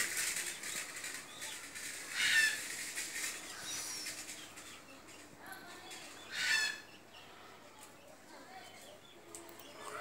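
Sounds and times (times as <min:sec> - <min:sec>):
faint bird chirps: 0:03.2 - 0:05.3.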